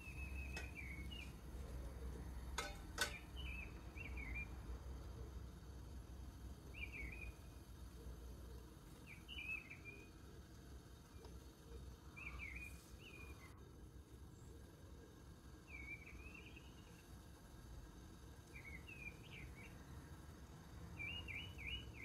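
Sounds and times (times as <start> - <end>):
warbling bird chirps: 0.0 - 2.2, 3.0 - 5.4, 6.5 - 10.4, 11.0 - 13.6, 14.2 - 17.3, 18.4 - 19.9, 21.0 - 22.0
low steady hum: 0.0 - 22.0
metal steamer clinking on pot: 0.4 - 1.2, 2.5 - 3.6.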